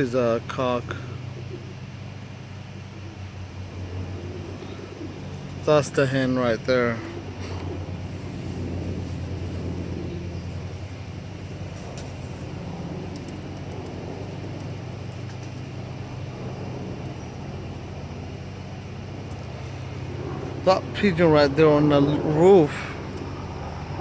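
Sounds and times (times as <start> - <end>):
low outdoor rumble: 0.0 - 24.0
even hiss: 4.2 - 13.4.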